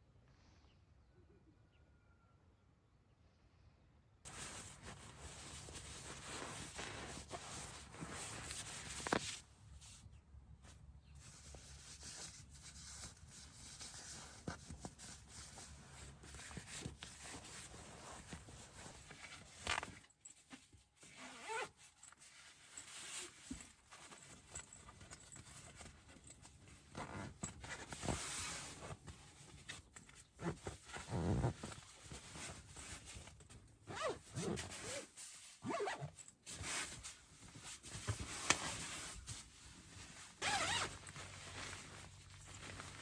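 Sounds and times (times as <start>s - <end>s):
zipper being pulled: 4.3s - 9.2s, 21.0s - 21.8s, 26.9s - 29.1s, 30.4s - 33.3s, 33.9s - 37.1s, 40.3s - 43.0s.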